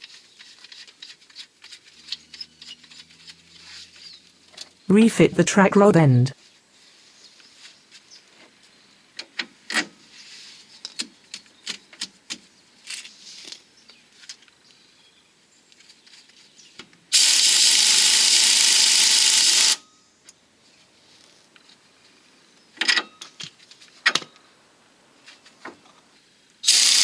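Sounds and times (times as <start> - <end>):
power tool running: 17.2 - 19.8, 26.7 - 27.0.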